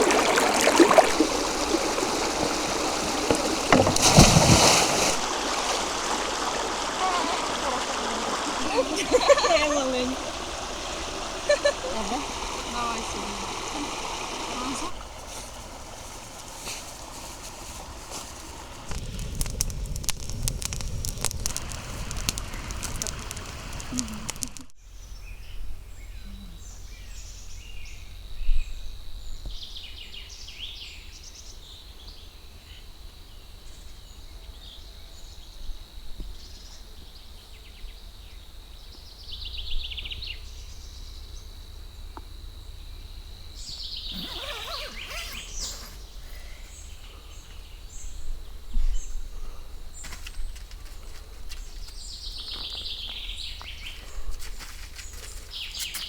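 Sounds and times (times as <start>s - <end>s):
birds chirping: 0.0s - 18.9s, 43.6s - 54.4s.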